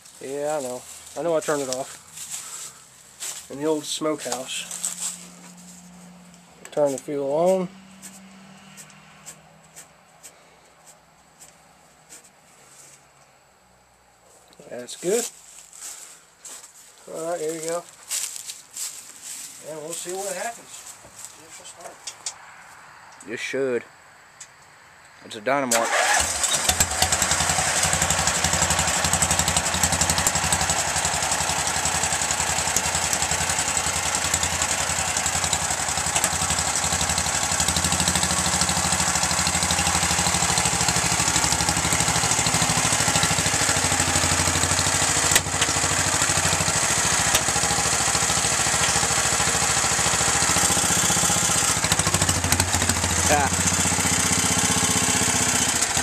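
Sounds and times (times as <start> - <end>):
small engine idling: 0.0 - 7.3, 25.8 - 56.0.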